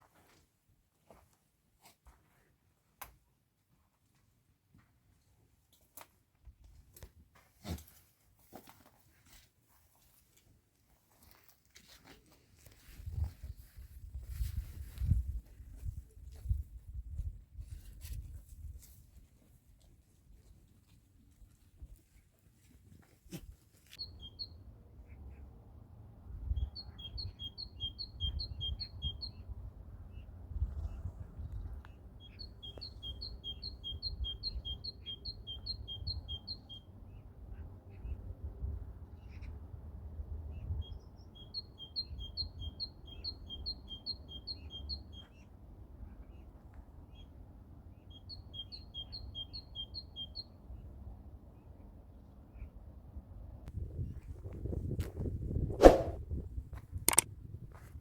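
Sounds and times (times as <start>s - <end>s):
songbird singing: 23.9s - 25.2s, 26.5s - 29.5s, 30.1s - 37.3s, 40.5s - 45.5s, 47.9s - 50.6s
small bird chirping: 24.0s - 24.6s, 26.5s - 29.4s, 31.5s - 36.8s, 40.8s - 45.4s, 48.1s - 50.6s.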